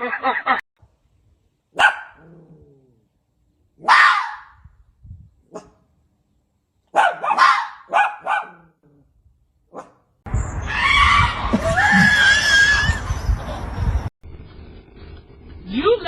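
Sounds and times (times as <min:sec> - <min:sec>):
dog barking: 0:01.8 - 0:02.4, 0:03.8 - 0:04.6, 0:05.5 - 0:05.8, 0:06.9 - 0:08.8, 0:09.7 - 0:10.0.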